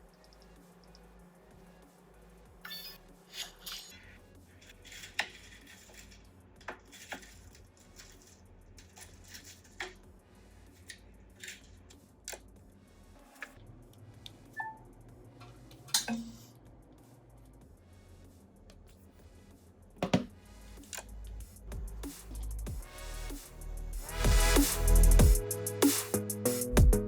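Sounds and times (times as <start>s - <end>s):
small tools clicking and tapping: 4.6s - 10.1s.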